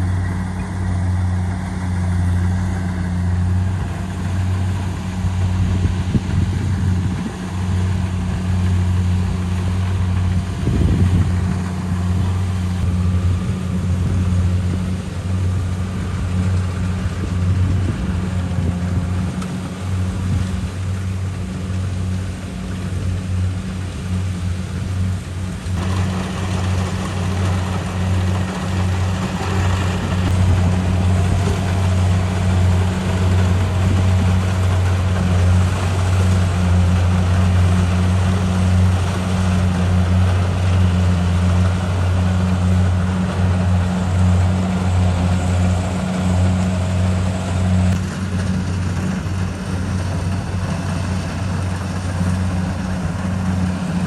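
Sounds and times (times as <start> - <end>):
combine harvester engine drone: 0.0 - 54.0
machine clatter: 25.7 - 42.5.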